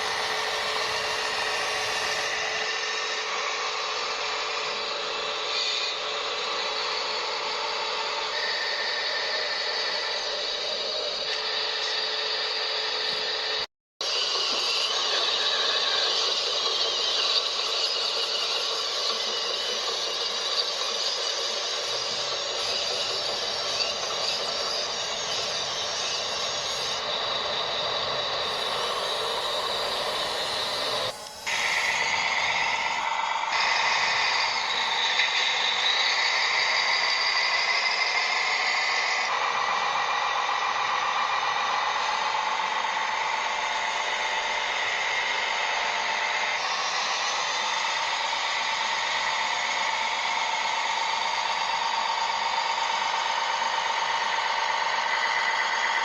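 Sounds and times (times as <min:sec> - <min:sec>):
whine of small electric motors: 0:00.0 - 0:56.0.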